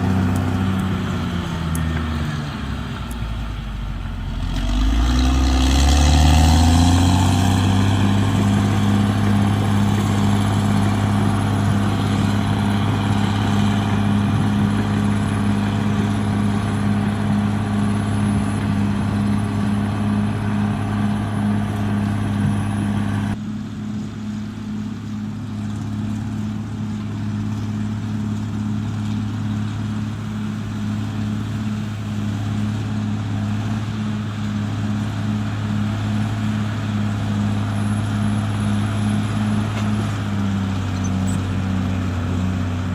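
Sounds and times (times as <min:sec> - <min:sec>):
heavy diesel engine running hard: 0:00.0 - 0:42.9.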